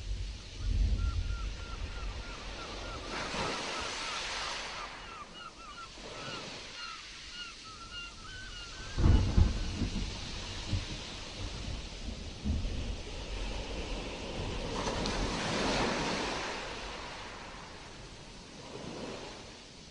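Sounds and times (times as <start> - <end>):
low rumble of thunder: 0.0 - 2.6, 8.8 - 15.6
stormy sea surf: 0.0 - 19.9.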